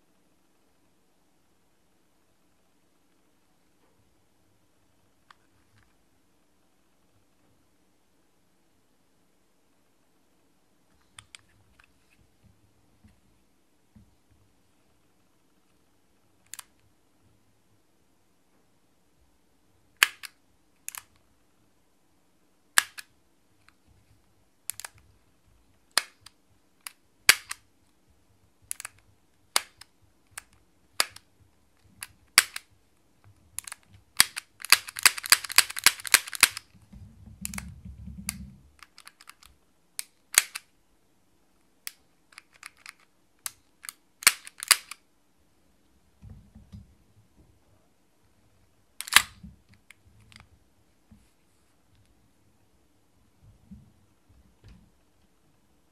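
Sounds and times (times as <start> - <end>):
airsoft pistol action clicks: 20.0 - 21.1, 22.8 - 23.1, 24.7 - 25.0, 25.9 - 27.6, 28.7 - 31.2, 32.0 - 32.7, 33.6 - 36.6, 38.3 - 40.7, 41.9 - 45.0, 49.0 - 49.4.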